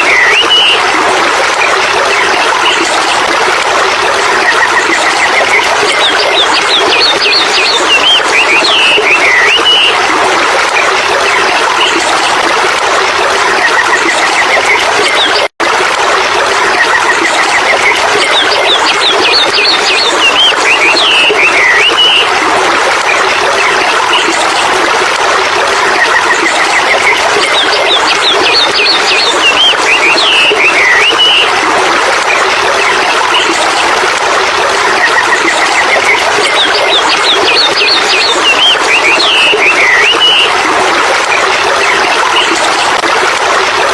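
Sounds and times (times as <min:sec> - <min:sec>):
birds chirping: 0:00.0 - 0:00.9, 0:04.6 - 0:10.0, 0:17.6 - 0:22.3, 0:26.1 - 0:31.5, 0:35.1 - 0:40.6.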